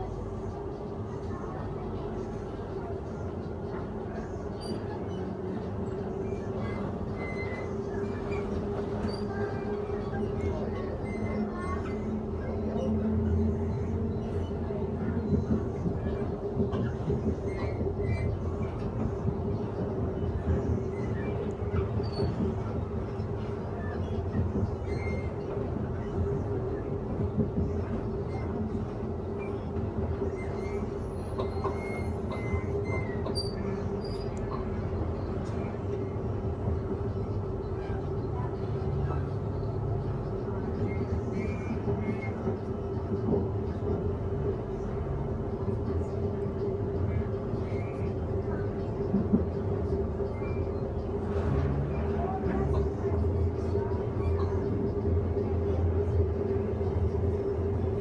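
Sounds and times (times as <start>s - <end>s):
wheel and rail rumble: 0.0s - 58.0s
faint high squeaks: 4.5s - 13.0s, 13.7s - 18.9s, 23.6s - 26.4s, 27.8s - 36.2s.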